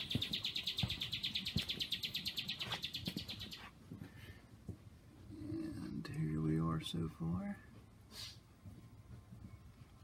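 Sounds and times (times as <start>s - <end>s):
high-pitched bird trill: 0.0s - 3.7s
soft footsteps thumping: 0.0s - 5.3s, 7.7s - 10.0s.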